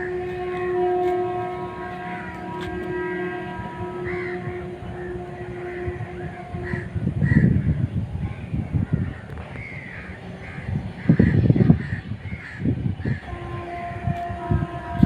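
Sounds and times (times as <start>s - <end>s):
crows cawing: 4.0s - 4.4s, 6.6s - 7.6s.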